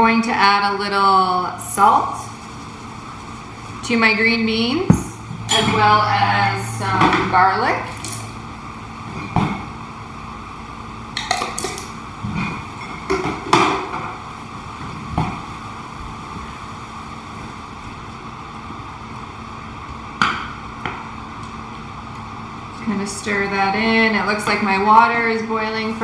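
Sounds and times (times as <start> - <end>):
steady background hum: 0.0 - 26.0
utensils clinking on pots: 5.2 - 8.4, 11.2 - 14.1.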